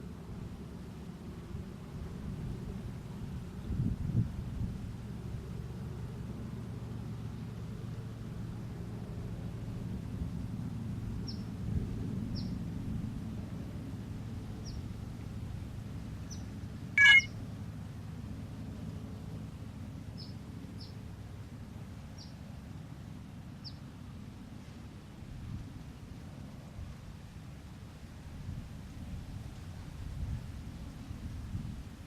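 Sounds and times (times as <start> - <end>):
faint high bird chirps: 17.0 - 17.3
short electronic chime: 17.0 - 17.3.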